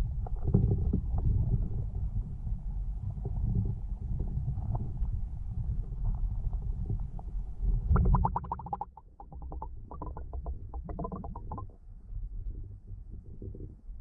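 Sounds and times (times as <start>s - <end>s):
underwater rumble of water: 0.0s - 14.0s
rapid clicking pulses: 8.0s - 11.8s.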